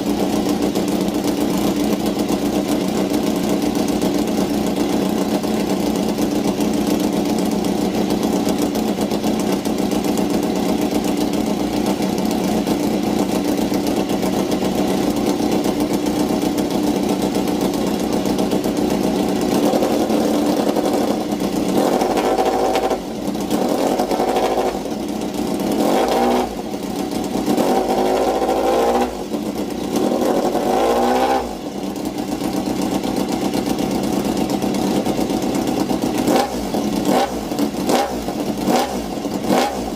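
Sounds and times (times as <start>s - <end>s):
motorcycle engine idling: 0.0s - 39.9s
motorcycle engine revving: 0.0s - 39.9s.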